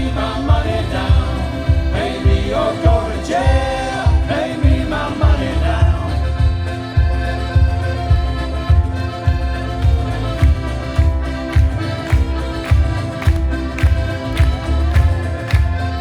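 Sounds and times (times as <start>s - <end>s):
male choir singing in harmony: 0.0s - 6.6s
steady beat: 0.0s - 16.0s.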